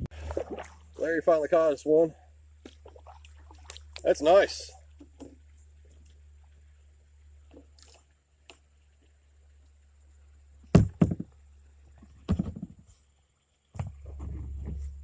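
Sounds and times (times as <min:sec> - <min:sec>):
hollow knocks on kayak hull: 0:10.7 - 0:11.3, 0:12.0 - 0:12.8.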